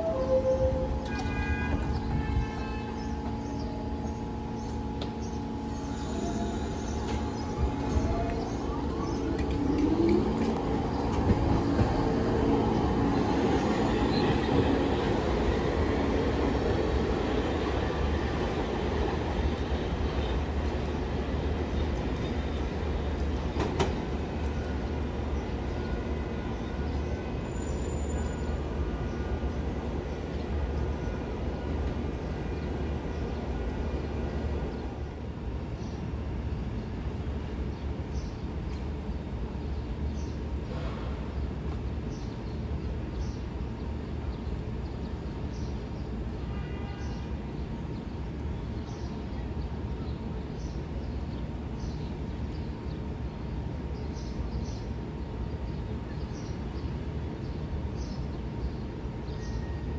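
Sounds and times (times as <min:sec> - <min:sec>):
subway train rumbling: 0:00.0 - 0:59.9.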